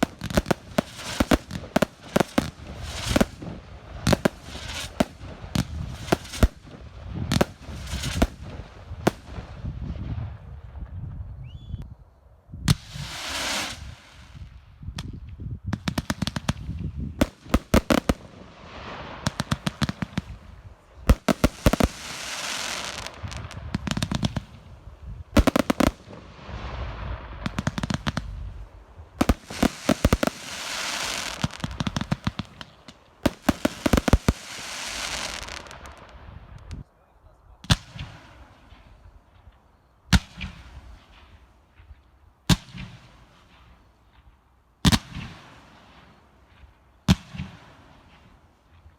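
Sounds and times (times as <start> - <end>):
hissing crackle: 17.3 - 36.8
firework shells bursting: 29.2 - 36.0.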